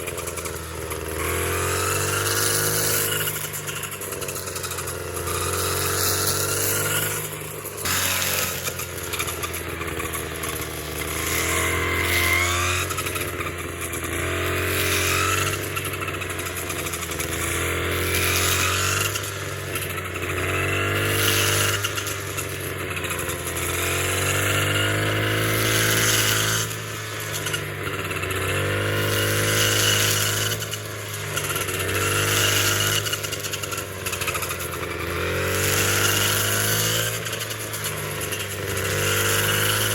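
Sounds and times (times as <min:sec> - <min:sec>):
small engine running with surging pitch: 0:00.0 - 0:39.9.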